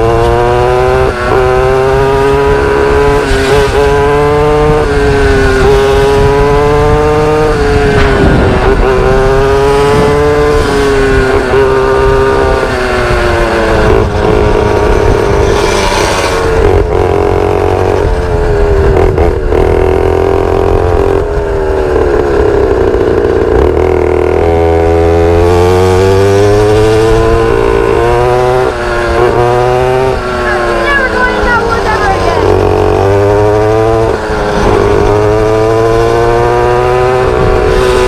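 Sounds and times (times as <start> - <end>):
small motorbike engine revving: 0.0 - 38.0.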